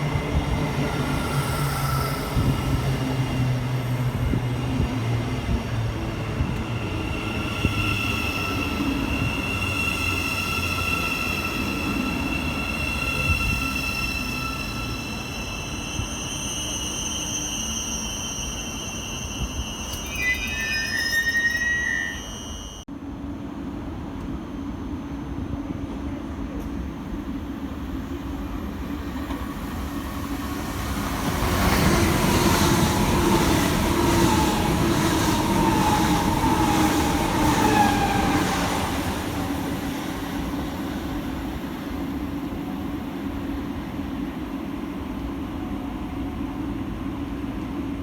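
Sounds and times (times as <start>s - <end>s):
train whine falling in pitch: 14.8s - 22.8s.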